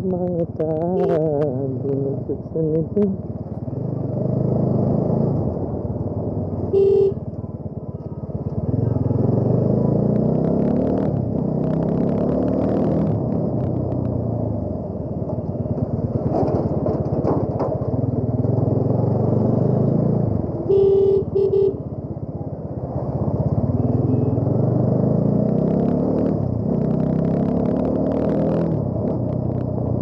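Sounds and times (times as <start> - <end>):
horn beeping: 1.0 - 1.2, 6.7 - 7.3, 20.6 - 21.9
motorcycle engine revving: 3.0 - 7.2, 8.2 - 14.6, 15.8 - 22.1, 22.7 - 30.0.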